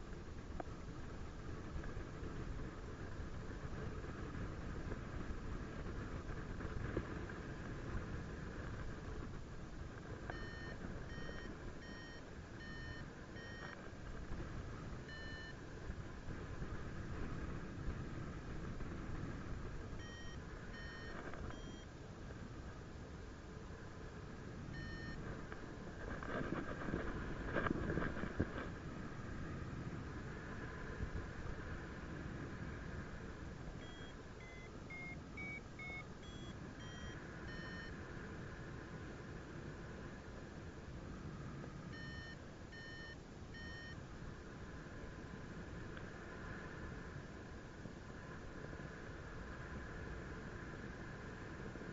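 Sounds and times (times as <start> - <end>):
variometer short beeps: 10.3 - 13.8, 15.0 - 15.6, 20.0 - 21.9, 24.7 - 25.2, 33.8 - 38.0, 41.9 - 44.0.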